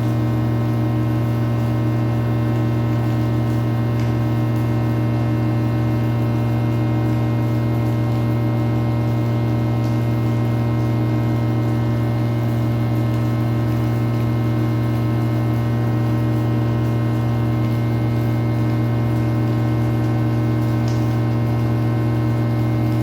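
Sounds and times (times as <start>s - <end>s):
low hum with overtones: 0.0s - 23.0s.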